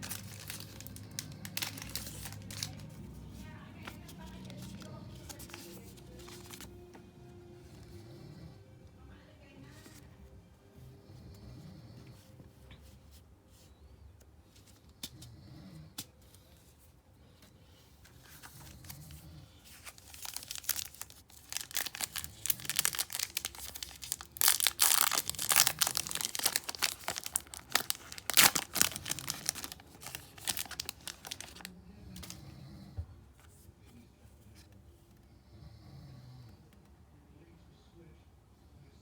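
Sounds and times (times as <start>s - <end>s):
foil wrappers tearing and crinkling: 0.0s - 3.0s, 19.7s - 32.3s.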